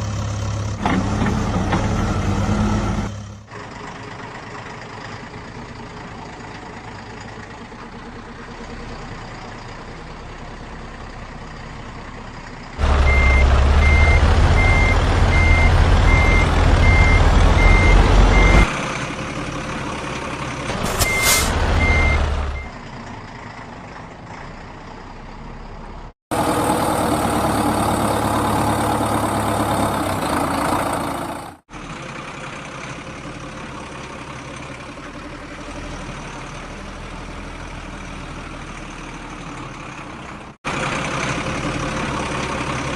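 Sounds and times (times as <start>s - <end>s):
vehicle engine running: 3.2s - 42.9s
reversing alarm beeping: 13.0s - 18.7s, 20.8s - 22.8s.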